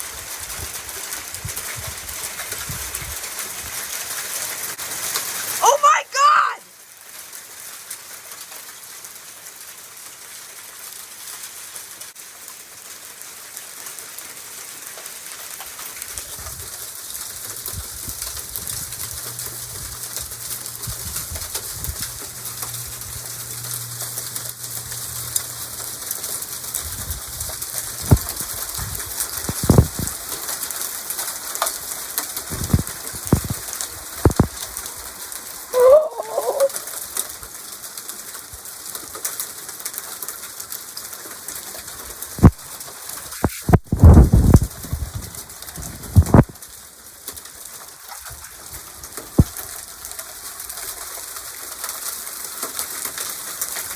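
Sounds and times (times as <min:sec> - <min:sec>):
heavy rain and hail: 0:00.0 - 0:05.8, 0:06.7 - 0:53.9
wind gusts buffeting microphone: 0:43.7 - 0:46.5.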